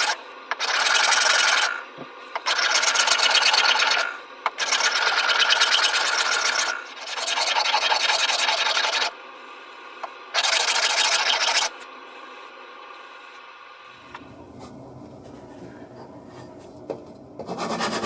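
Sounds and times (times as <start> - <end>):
tool scratching wood: 0.0 - 1.8, 2.4 - 9.1, 10.4 - 11.8, 17.4 - 18.0
faint steady whine: 8.9 - 10.4, 11.6 - 17.4.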